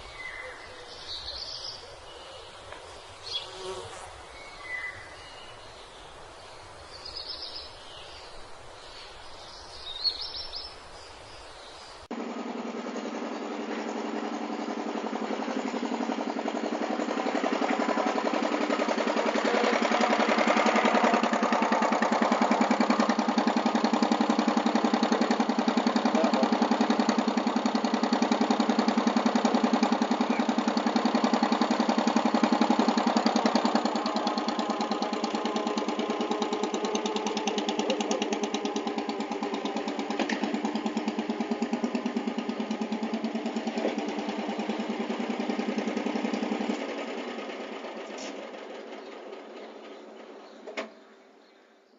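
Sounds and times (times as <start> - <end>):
truck engine running: 12.1 - 51.3.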